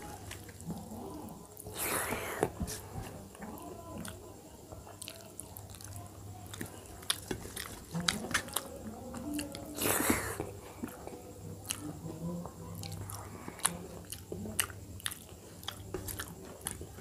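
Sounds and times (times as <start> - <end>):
chewing with lip smacks: 4.8 - 17.0.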